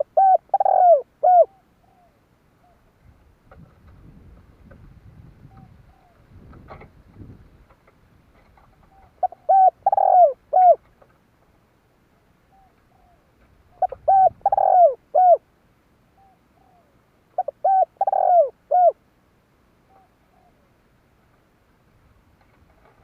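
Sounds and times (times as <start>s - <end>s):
dove cooing: 0.0s - 2.9s, 5.4s - 6.3s, 8.8s - 10.9s, 12.5s - 15.4s, 16.2s - 19.0s, 19.9s - 20.8s.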